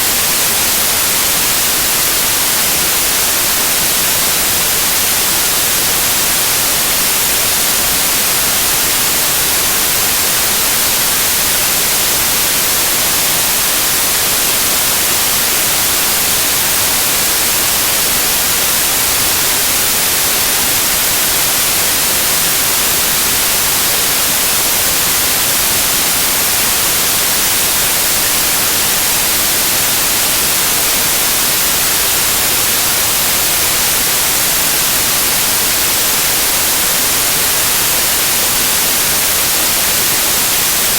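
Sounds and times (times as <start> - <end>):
white noise hiss: 0.0 - 40.9.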